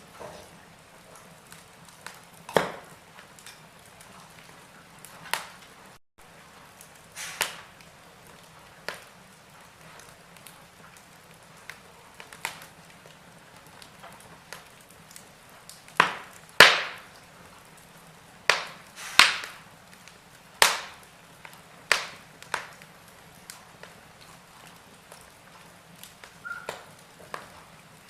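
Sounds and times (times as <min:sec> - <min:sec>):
wood fire crackling: 0:00.0 - 0:28.0
faint hiss: 0:05.6 - 0:10.7, 0:16.8 - 0:28.0.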